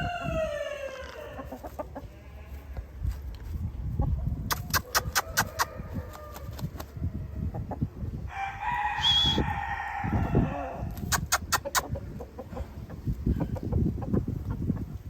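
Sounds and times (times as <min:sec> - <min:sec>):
rooster crowing: 0:00.0 - 0:01.6, 0:04.9 - 0:07.2, 0:08.3 - 0:11.0
sharp clicks: 0:11.0 - 0:11.9.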